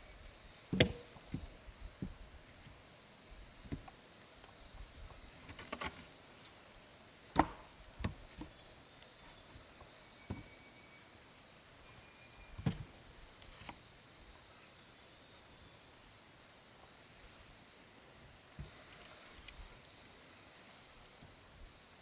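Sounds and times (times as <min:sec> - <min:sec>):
wood being chopped: 0:00.7 - 0:01.5, 0:07.4 - 0:07.7.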